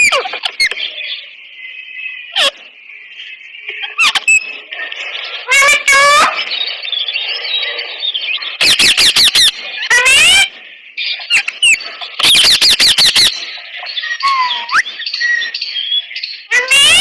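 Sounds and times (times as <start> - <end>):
parakeet screeching: 0.0 - 0.8, 2.4 - 2.6, 4.0 - 4.5, 5.5 - 6.4, 8.6 - 10.5, 11.3 - 13.5, 14.2 - 15.0, 16.5 - 17.0.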